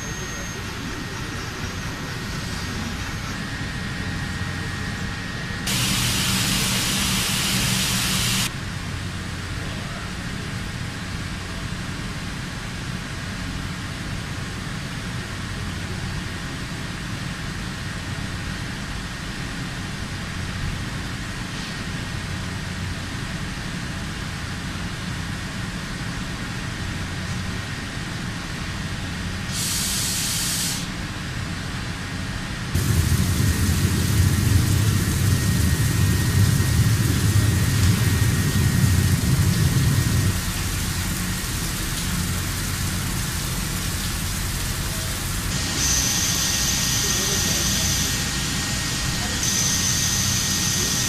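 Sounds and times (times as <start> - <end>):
heavy machinery rumbling: 5.7 - 8.5, 32.8 - 45.8
sharp hiss: 5.7 - 8.5, 29.5 - 31.0, 32.8 - 48.6.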